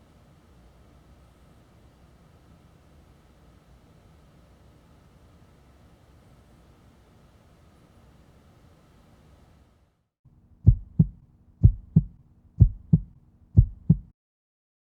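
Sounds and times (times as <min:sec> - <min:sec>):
steady low hum: 0:10.3 - 0:14.1
heartbeat thumps: 0:10.6 - 0:14.1.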